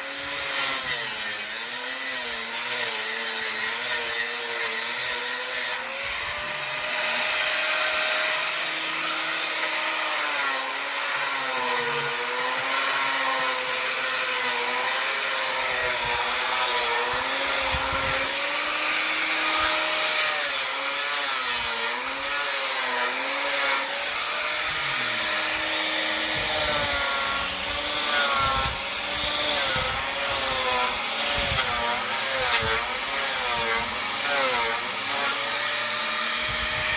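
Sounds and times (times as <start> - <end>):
power sander grinding wood: 0.0 - 36.9.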